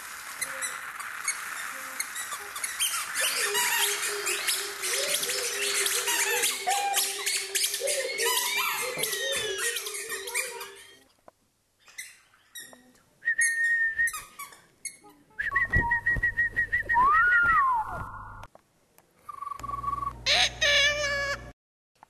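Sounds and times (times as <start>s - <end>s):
bird-like chirping: 0.4s - 11.0s
high trilled whistles: 0.4s - 11.0s, 13.2s - 14.4s
rising and falling whistle: 15.4s - 18.4s.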